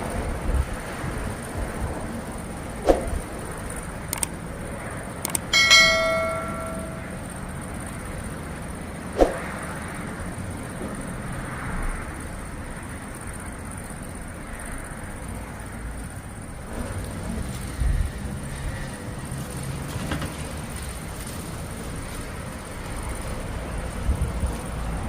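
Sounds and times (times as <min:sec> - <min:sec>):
steady noise bed: 0:01.1 - 0:07.6
faint high whine: 0:05.4 - 0:07.4.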